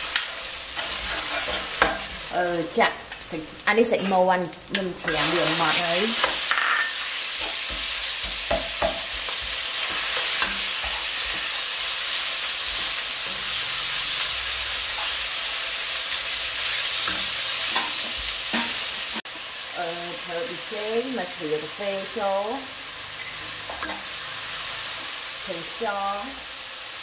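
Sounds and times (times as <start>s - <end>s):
chicken sizzling in oil: 0.0s - 27.0s
spatula scraping and tapping pan: 0.1s - 2.2s, 6.2s - 11.6s.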